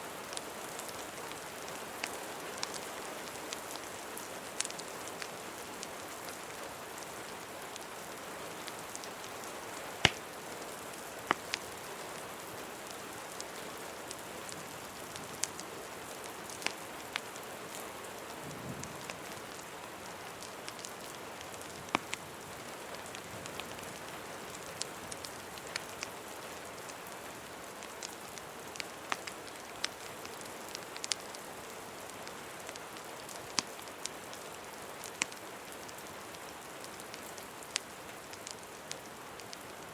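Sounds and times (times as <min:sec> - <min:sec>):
rain hiss: 0:00.0 - 0:39.9
fireplace crackling: 0:04.5 - 0:06.0, 0:08.9 - 0:17.3, 0:23.1 - 0:39.9
fire popping: 0:04.6 - 0:05.2, 0:09.9 - 0:10.5, 0:11.2 - 0:11.9, 0:27.8 - 0:31.4, 0:35.0 - 0:35.4, 0:36.9 - 0:39.6.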